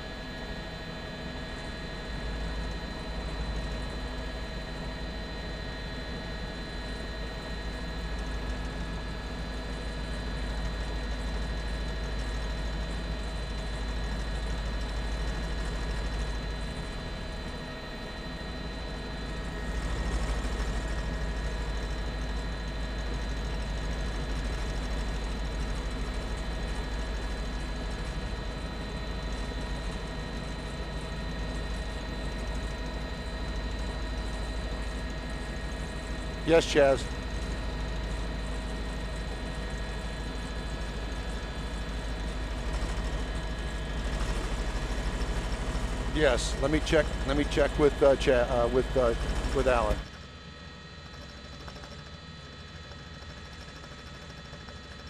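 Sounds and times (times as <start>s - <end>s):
helicopter rotor beat: 0.0s - 55.0s
turbine whine: 0.0s - 55.0s
helicopter rotor thudding: 19.2s - 28.2s, 33.7s - 50.1s.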